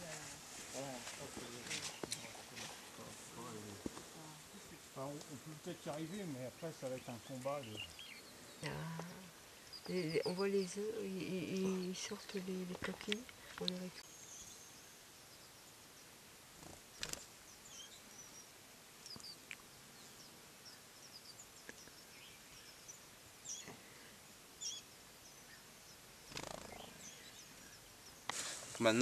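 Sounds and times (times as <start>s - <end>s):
faint forest ambience: 0.0s - 29.0s
soft clicks: 12.8s - 13.9s.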